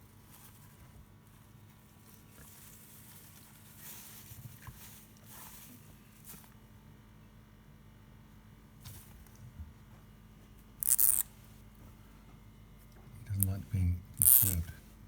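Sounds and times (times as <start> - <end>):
hamster squeaks: 10.8 - 11.2, 14.2 - 14.6.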